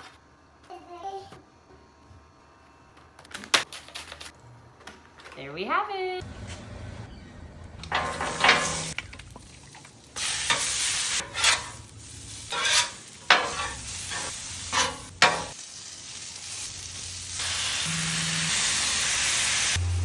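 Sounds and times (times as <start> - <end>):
food sizzling on a griddle: 7.9 - 20.0.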